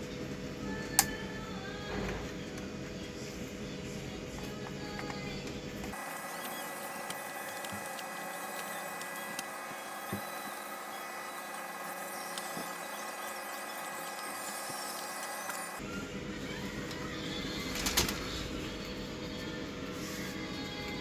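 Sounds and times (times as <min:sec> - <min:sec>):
cd mechanism whirring: 0:04.3 - 0:19.5.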